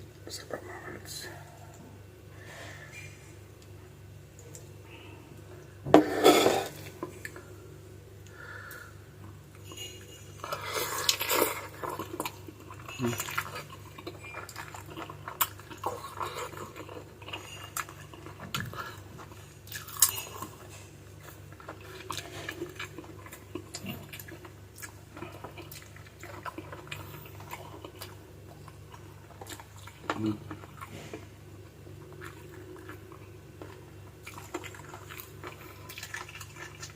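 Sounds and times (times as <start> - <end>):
steady low hum: 0.0 - 36.9
wet chewing and slurping: 10.4 - 31.3, 31.9 - 36.9.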